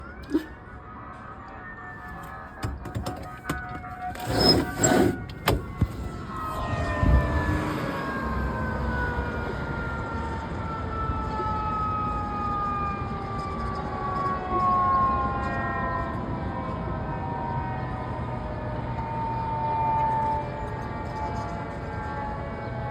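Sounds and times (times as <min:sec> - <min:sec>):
fire truck siren: 0:00.0 - 0:22.9.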